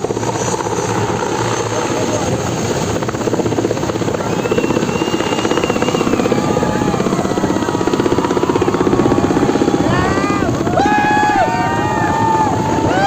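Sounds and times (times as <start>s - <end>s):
helicopter rotor chopping: 0.0s - 13.0s.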